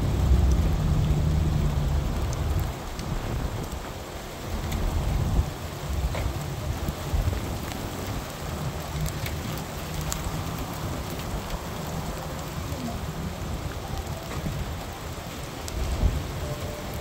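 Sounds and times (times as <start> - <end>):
low rumble: 0.0 - 3.8
raindrops ticking: 0.0 - 17.0
steady rain falling: 0.0 - 17.0.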